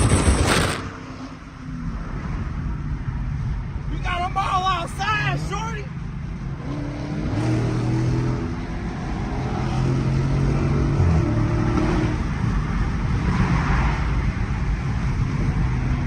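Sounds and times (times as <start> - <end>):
rush of noise: 0.0 - 6.0
car engine revving: 6.5 - 16.0.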